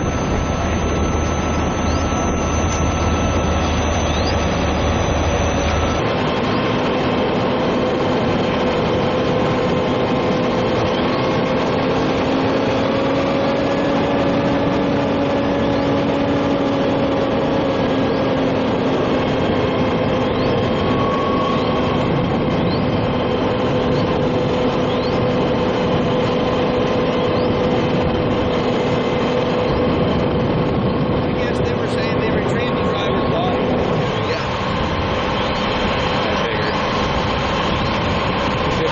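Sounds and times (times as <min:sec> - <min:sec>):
heavy engine humming: 0:00.0 - 0:38.9.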